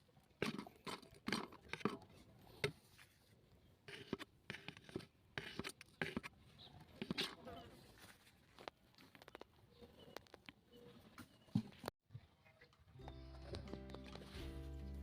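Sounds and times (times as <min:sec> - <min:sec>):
short scratching and scraping: 0:00.4 - 0:08.7.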